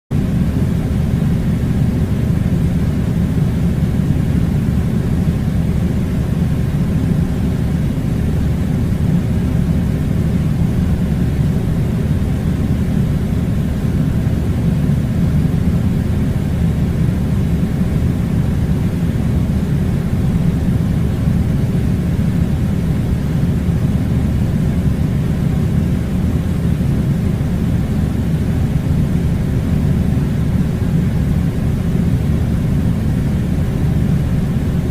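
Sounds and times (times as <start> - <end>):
air conditioning rumble: 0.1 - 34.9.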